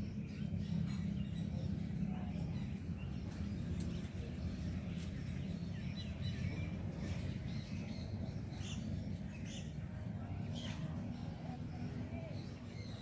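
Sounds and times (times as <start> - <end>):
small birds chirping: 0.0 - 13.0
steady low rumble: 0.0 - 13.0.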